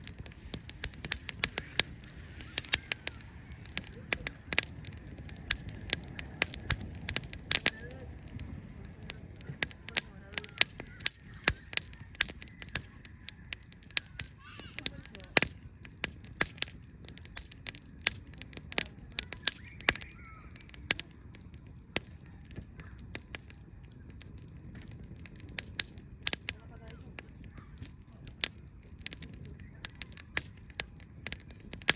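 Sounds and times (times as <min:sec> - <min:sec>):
low steady rumble: 0:00.0 - 0:10.6
wood fire crackling and popping: 0:00.0 - 0:31.9.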